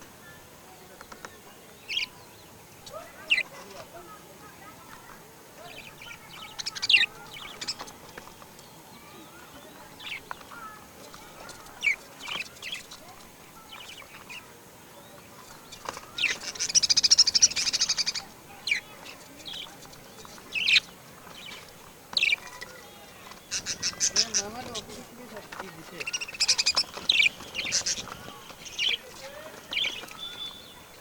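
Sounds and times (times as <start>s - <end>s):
birds chirping: 0.0s - 31.0s
bird trill: 1.8s - 3.6s, 5.7s - 31.0s.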